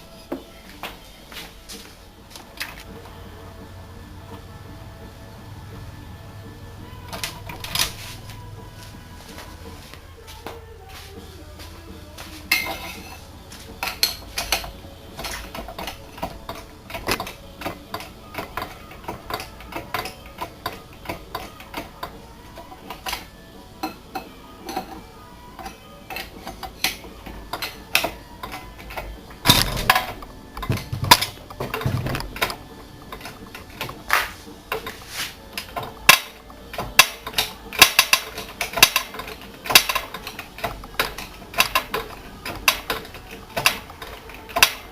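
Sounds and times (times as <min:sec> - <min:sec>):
metal clicks and clanks: 0:13.8 - 0:25.0, 0:25.6 - 0:44.9.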